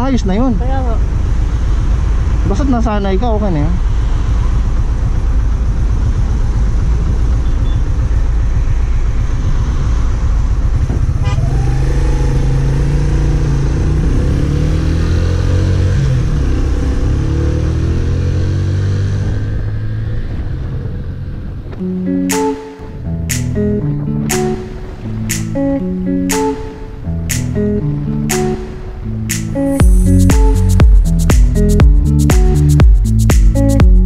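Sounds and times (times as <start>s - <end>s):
motorcycle engine: 3.8s - 22.3s.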